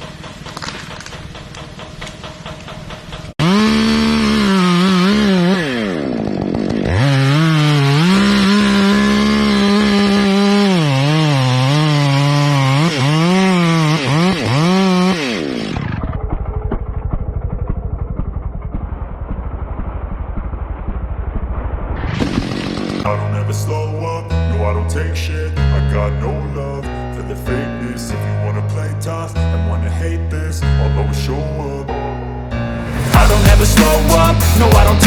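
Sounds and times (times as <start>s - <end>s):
chainsaw running at high revs: 3.4s - 16.1s, 32.9s - 35.0s.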